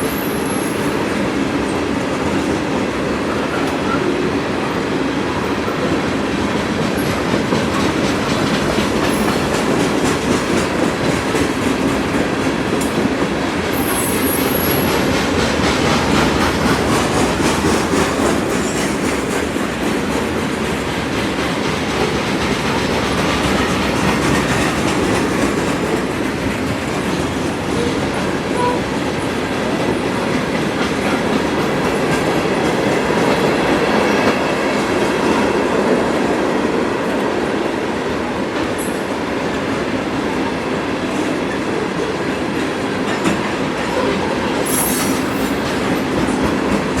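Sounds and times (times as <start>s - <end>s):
train wheel squeal: 0.0s - 1.1s, 9.0s - 9.6s, 13.7s - 19.4s, 43.9s - 47.0s
freight train rumbling and rattling: 0.0s - 47.0s.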